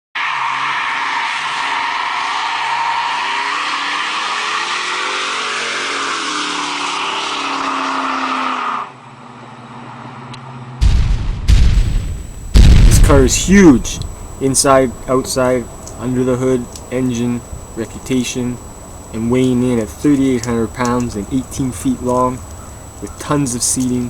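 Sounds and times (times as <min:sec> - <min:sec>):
tires squealing: 0:00.2 - 0:10.8
car engine revving: 0:00.4 - 0:09.0, 0:11.8 - 0:24.0
loud sudden bang: 0:10.8 - 0:14.0.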